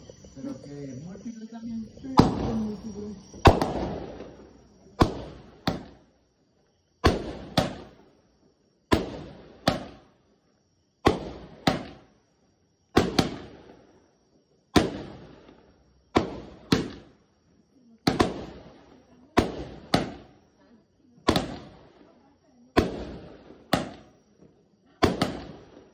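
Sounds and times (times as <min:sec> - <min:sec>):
fireworks bangs with echo: 0:02.0 - 0:06.1, 0:07.0 - 0:08.1, 0:08.9 - 0:10.2, 0:11.0 - 0:12.2, 0:12.9 - 0:13.9, 0:14.7 - 0:17.2, 0:18.0 - 0:20.4, 0:21.2 - 0:25.9.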